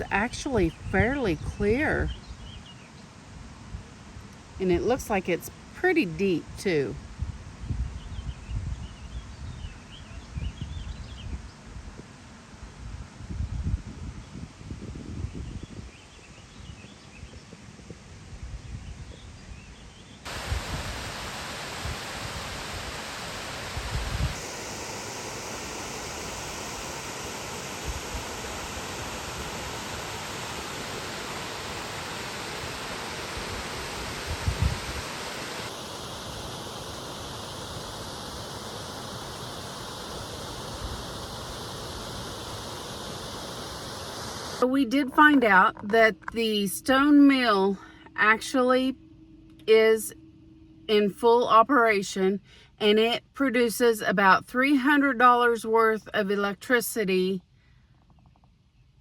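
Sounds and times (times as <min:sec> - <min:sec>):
wind rumble on microphone: 0:00.0 - 0:05.3, 0:06.7 - 0:24.6, 0:25.6 - 0:35.7
rushing falling water: 0:20.3 - 0:44.6.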